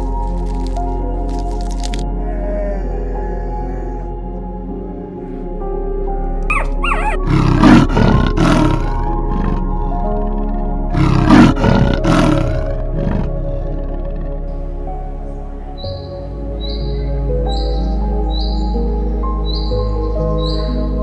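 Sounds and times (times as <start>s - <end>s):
background music: 0.0s - 21.0s
large animal roaring: 2.2s - 4.3s, 6.6s - 10.0s, 10.9s - 14.3s.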